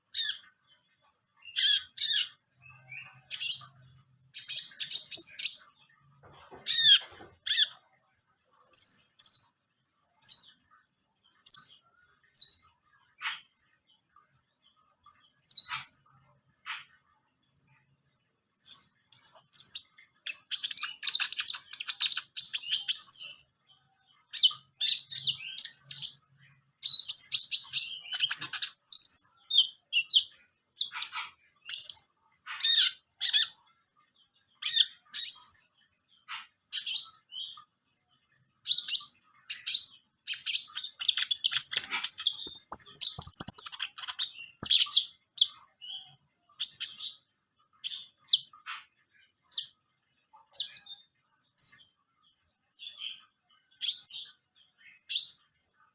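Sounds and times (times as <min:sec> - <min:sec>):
songbird chirping and twittering: 0:00.0 - 0:55.9.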